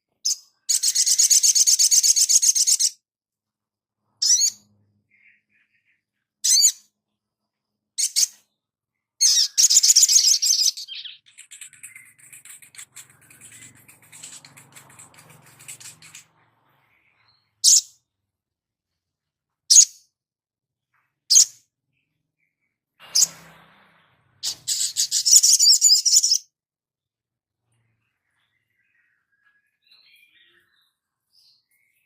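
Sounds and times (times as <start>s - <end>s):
faint high bird chatter: 0.1s - 3.0s, 4.0s - 18.2s, 24.4s - 26.5s, 27.6s - 32.0s
fast bird twittering: 0.2s - 2.9s, 9.2s - 17.9s, 24.4s - 26.4s
sharp high bird chirps: 0.2s - 3.0s, 4.2s - 6.9s, 8.0s - 8.6s, 9.2s - 18.2s, 19.7s - 20.2s, 24.4s - 26.5s.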